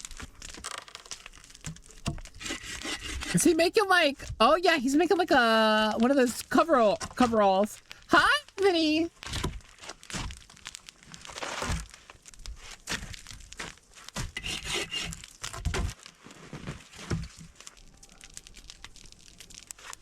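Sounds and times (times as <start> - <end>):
wood cracks and thuds: 0.0 - 3.4, 9.1 - 20.0
tree limbs rustling and crunching: 0.0 - 20.0.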